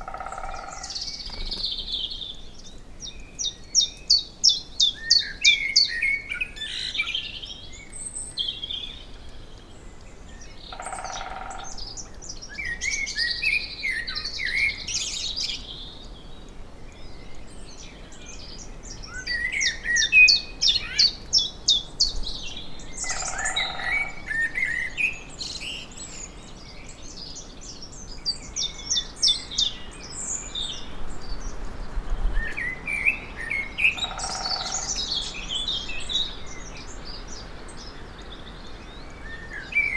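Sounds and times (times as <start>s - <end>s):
woodpecker drumming on tree: 0.0s - 1.8s
songbirds chirping and trilling: 0.0s - 39.9s.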